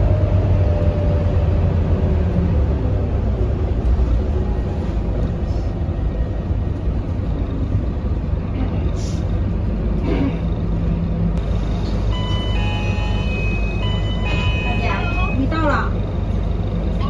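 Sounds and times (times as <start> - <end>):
bus diesel engine rumble: 0.0 - 17.0.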